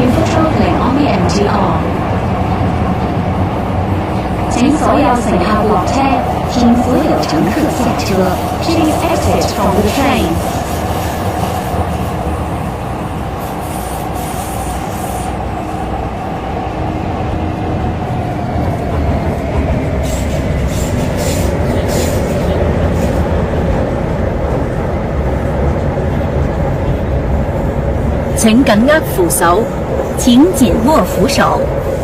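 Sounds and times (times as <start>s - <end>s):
train wheels rumbling on rails: 0.0s - 32.0s
train whine: 0.0s - 32.0s.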